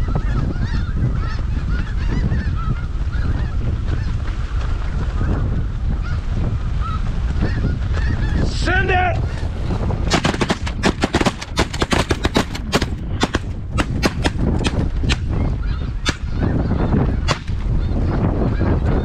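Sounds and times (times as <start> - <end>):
geese honking: 0.0 - 4.2
wind buffeting microphone: 0.0 - 19.0
shotgun fire: 10.1 - 15.2.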